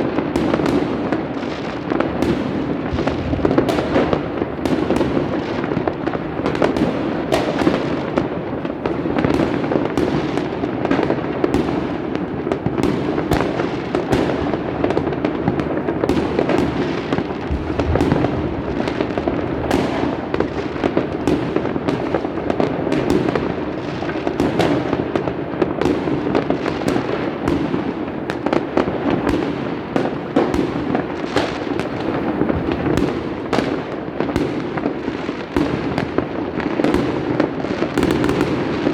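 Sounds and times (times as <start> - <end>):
fireworks bangs and pops: 0.0 - 38.9
fireworks rumble and crackle: 0.0 - 38.9.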